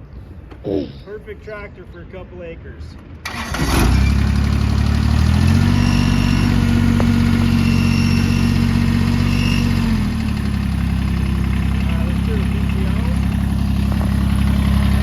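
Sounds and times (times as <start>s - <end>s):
diesel engine starting and revving: 3.2s - 15.0s.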